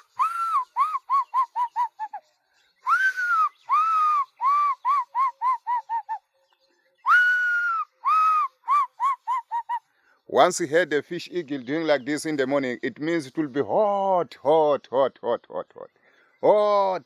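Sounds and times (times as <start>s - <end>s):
man imitating bird call: 0.0s - 6.3s, 7.0s - 9.9s.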